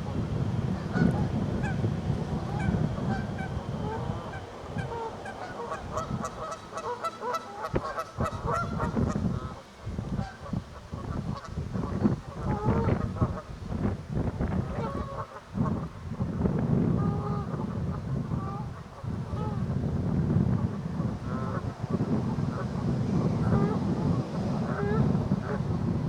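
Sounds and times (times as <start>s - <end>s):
geese honking: 0.0s - 9.6s, 23.4s - 23.8s, 24.6s - 25.6s.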